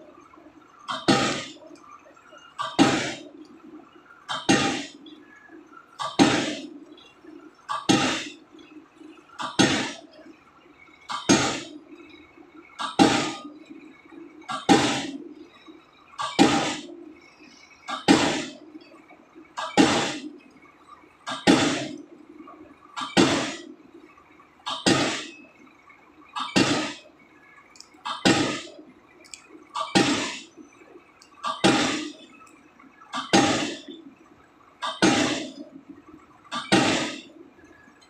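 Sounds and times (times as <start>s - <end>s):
pile-driving hammer clanging on pile: 0.9s - 1.6s, 2.6s - 3.2s, 4.3s - 4.9s, 6.0s - 6.7s, 7.7s - 8.4s, 9.4s - 10.0s, 11.1s - 11.7s, 12.8s - 13.5s, 14.5s - 15.2s, 16.2s - 16.9s, 17.9s - 18.6s, 19.6s - 20.3s, 21.3s - 22.0s, 23.0s - 23.7s, 24.7s - 25.3s, 26.4s - 27.0s, 28.1s - 28.8s, 29.8s - 30.4s, 31.4s - 32.2s, 33.2s - 33.9s, 34.8s - 35.6s, 36.5s - 37.3s.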